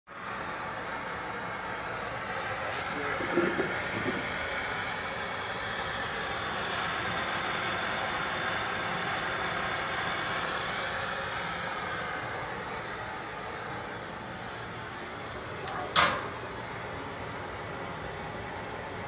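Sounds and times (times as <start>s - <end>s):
gas hissing: 0.1s - 19.0s.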